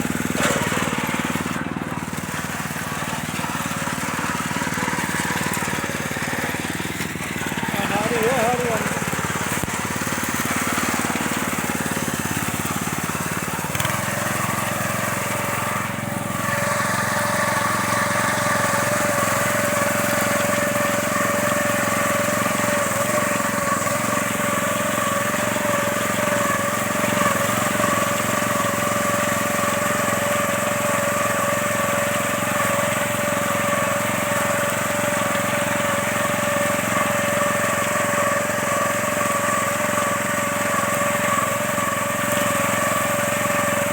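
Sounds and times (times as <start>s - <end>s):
harvester engine whining: 0.0s - 43.9s.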